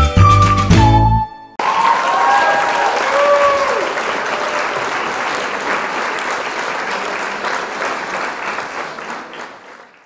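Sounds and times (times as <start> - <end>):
crowd applauding: 1.6 - 10.0.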